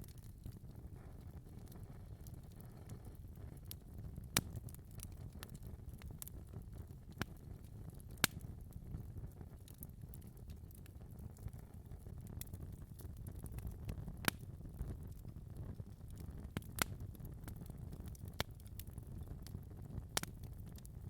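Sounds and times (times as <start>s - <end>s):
fire crackling: 0.0s - 21.0s
low rumble of flames: 0.0s - 21.0s
sharp fire pops: 16.2s - 18.9s.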